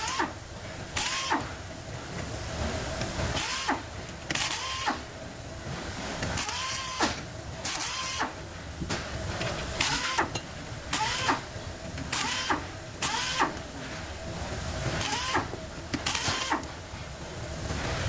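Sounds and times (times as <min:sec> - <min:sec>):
power tool motor spinning up: 0:15.0 - 0:15.5.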